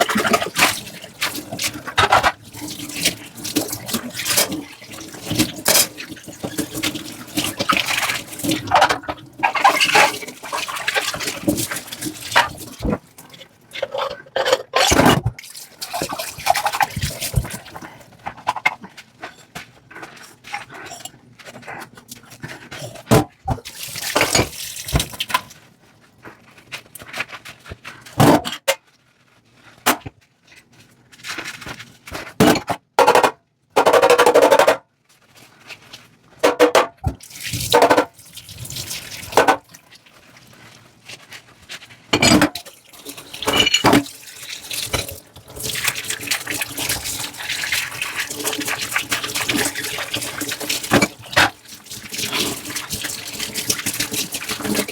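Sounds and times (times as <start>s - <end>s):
water splashing and pouring: 0.0s - 14.1s, 14.8s - 19.3s, 22.5s - 25.7s, 37.1s - 41.3s, 42.3s - 54.9s
dishes clinking: 42.2s - 42.6s, 43.4s - 44.1s.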